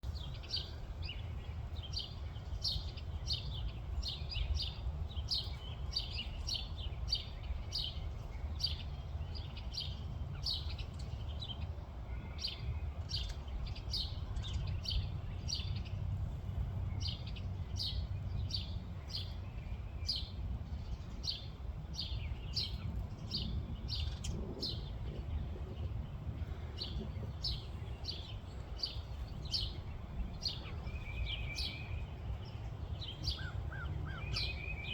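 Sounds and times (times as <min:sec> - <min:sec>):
bird chirping: 0:16.9 - 0:34.9.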